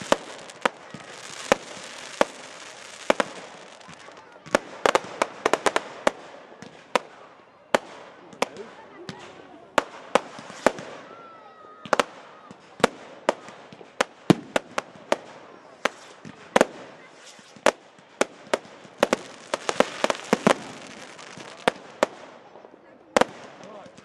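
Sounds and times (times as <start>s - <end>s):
fireworks hiss: 0.0s - 6.1s, 9.8s - 11.1s, 13.4s - 22.5s
fireworks bangs: 0.0s - 24.0s.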